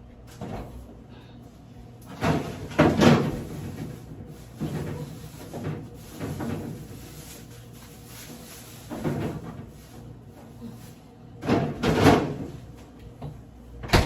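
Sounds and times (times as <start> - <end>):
kitchen knocks and clatter: 2.1 - 7.0, 8.8 - 9.8, 11.4 - 12.6.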